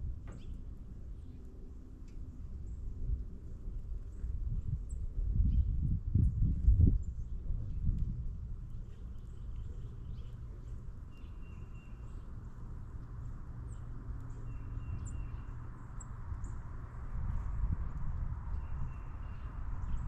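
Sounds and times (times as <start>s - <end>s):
songbirds chipping: 0.2s - 2.9s, 8.6s - 17.1s, 17.9s - 20.0s.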